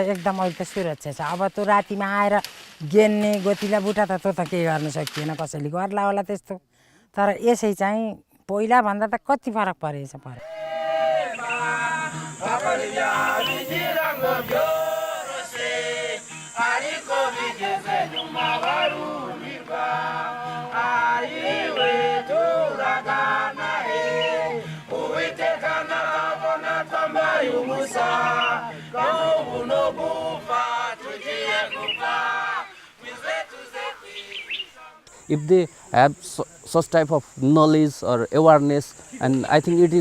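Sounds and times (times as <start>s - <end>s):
group of voices singing: 10.4s - 35.1s.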